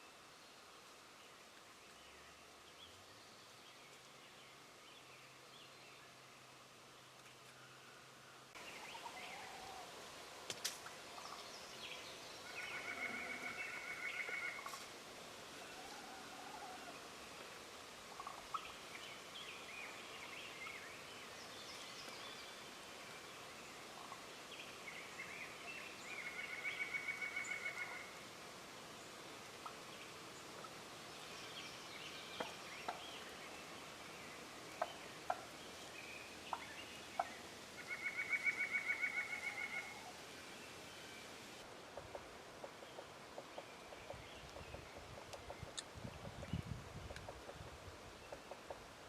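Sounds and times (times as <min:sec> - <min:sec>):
small birds chirping: 0:16.9 - 0:49.0
turkey gobbling: 0:18.2 - 0:18.7.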